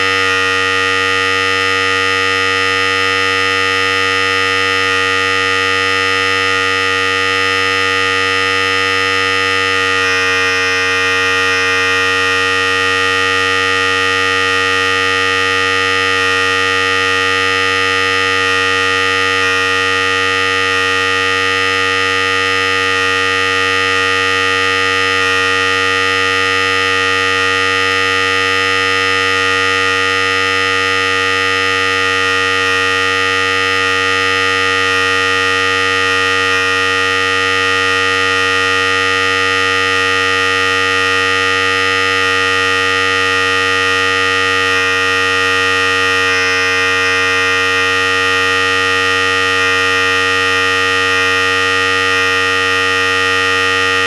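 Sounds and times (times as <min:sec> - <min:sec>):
hair clipper buzzing: 0:00.0 - 0:00.6, 0:09.5 - 0:15.4, 0:18.4 - 0:20.8, 0:44.5 - 0:54.0.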